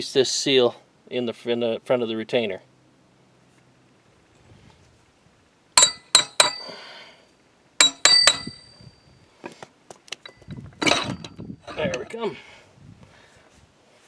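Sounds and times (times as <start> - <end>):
metal parts clanking: 5.8 - 6.7, 7.8 - 8.8, 10.2 - 12.1.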